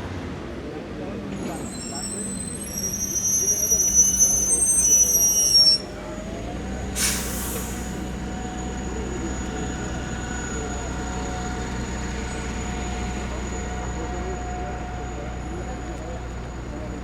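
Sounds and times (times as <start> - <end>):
vehicle brakes squealing: 1.3 - 17.0
air brake hiss: 7.0 - 8.1.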